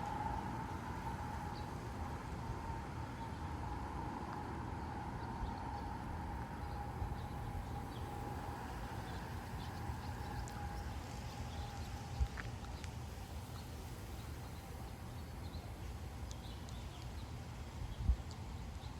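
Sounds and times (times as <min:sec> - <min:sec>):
steady high hum: 0:00.0 - 0:18.9
gusty wind buffeting microphone: 0:02.6 - 0:14.6.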